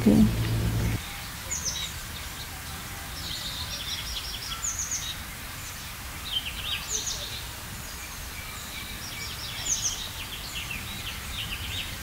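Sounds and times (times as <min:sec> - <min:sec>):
low outdoor rumble: 0:00.0 - 0:01.0
small birds chirping: 0:00.0 - 0:01.0.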